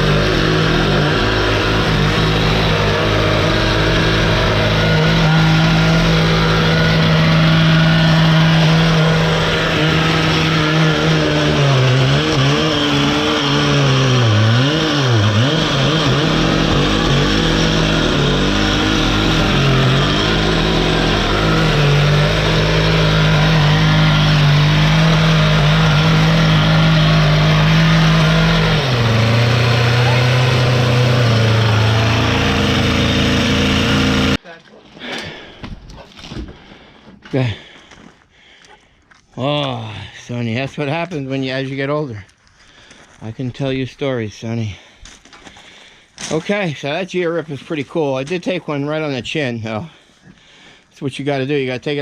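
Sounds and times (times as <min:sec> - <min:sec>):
engine running under load: 0:00.0 - 0:34.4.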